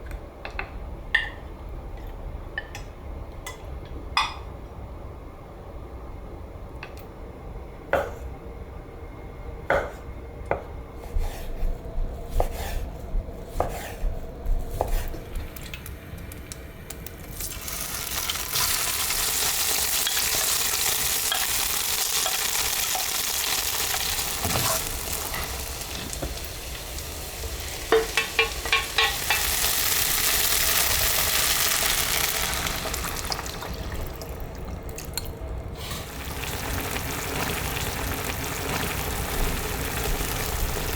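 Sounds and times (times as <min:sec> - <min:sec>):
food sizzling in a hot pan: 0:17.3 - 0:34.5, 0:35.8 - 0:40.9
utensils clinking on kitchenware: 0:27.9 - 0:29.6.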